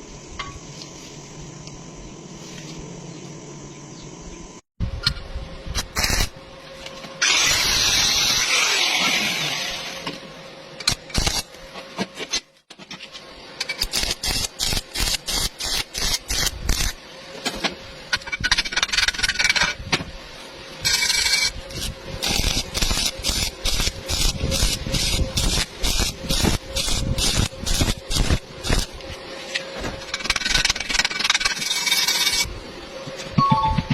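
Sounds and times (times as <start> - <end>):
noisy bursts: 13.4 - 33.9
sharp crackles and clicks: 20.8 - 29.0
long scraping on steel: 20.8 - 32.5.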